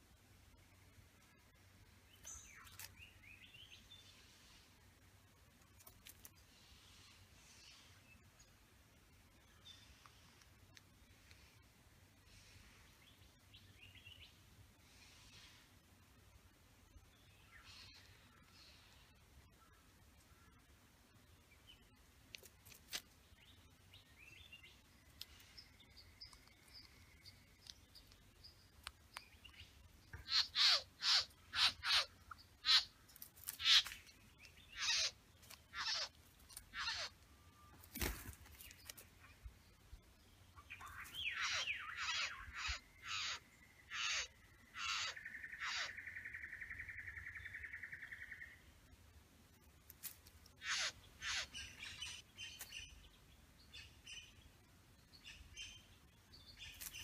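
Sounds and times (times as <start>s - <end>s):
faint bird calls: 17.5s - 20.6s, 29.5s - 33.0s, 33.6s - 38.3s, 40.5s - 48.7s, 50.5s - 53.0s.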